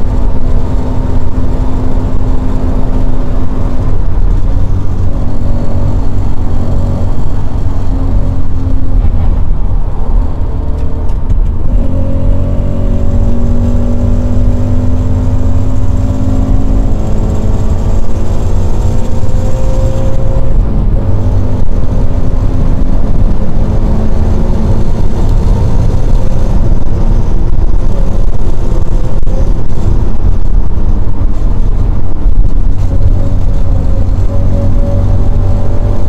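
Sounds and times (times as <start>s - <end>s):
car engine revving hard: 0.0s - 36.0s
road and wind noise: 0.0s - 36.0s.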